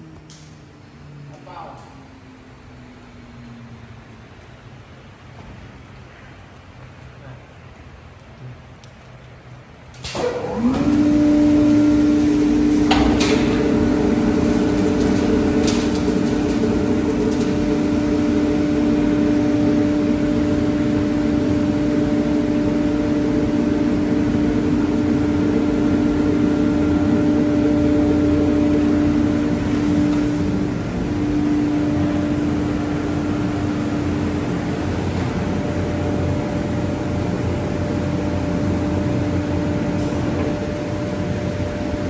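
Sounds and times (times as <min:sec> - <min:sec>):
machine spindle whine: 0:10.0 - 0:42.0
noisy background haze: 0:11.5 - 0:42.0.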